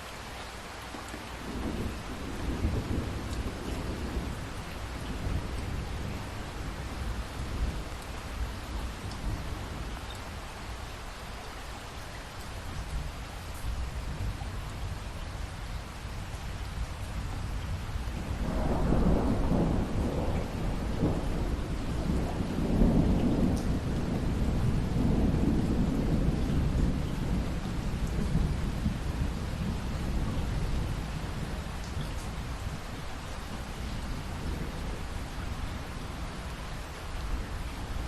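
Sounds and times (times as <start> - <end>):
rain falling: 0.0 - 38.0
thunder rumbling: 1.4 - 9.9, 17.5 - 33.0.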